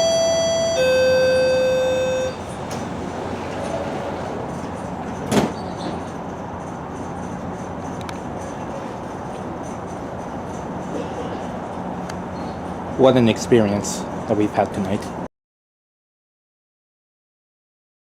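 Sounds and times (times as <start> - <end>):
door-closing chime: 0.0 - 4.3
coach interior rumble: 0.0 - 13.1
sliding doors thud: 1.0 - 6.2.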